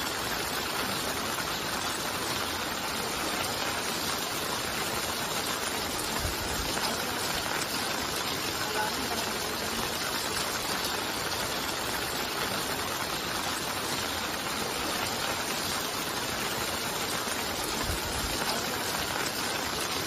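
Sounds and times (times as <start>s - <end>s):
heavy rain: 0.0s - 20.0s
running floodwater: 0.0s - 20.0s.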